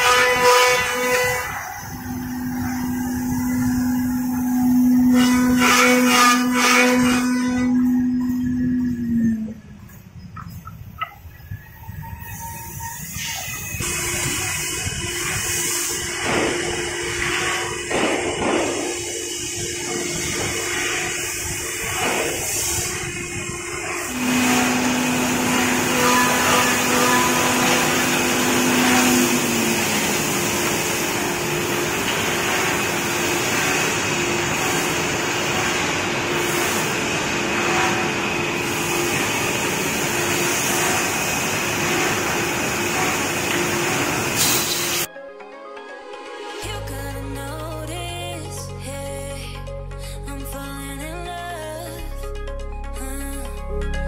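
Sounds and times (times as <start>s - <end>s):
boring machine running: 0.0s - 10.2s, 13.0s - 45.1s
steady machine tone: 0.0s - 45.1s.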